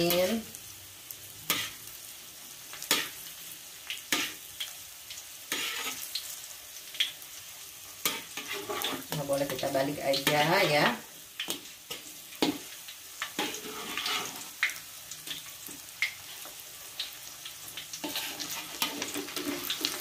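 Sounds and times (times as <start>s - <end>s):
shrimp sizzling in oil: 0.0s - 20.0s
metal spatula scraping pan: 5.5s - 6.1s, 8.0s - 9.3s, 13.4s - 14.6s, 18.0s - 20.0s.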